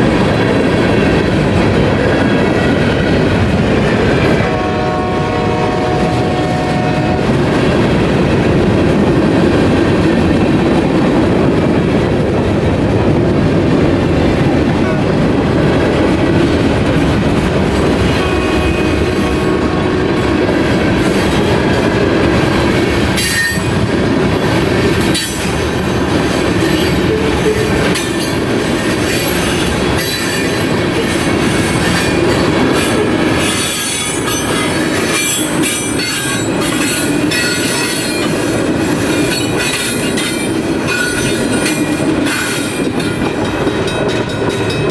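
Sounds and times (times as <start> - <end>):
train cars rumbling past: 0.0 - 44.9
train horn: 4.2 - 7.5, 18.0 - 20.6.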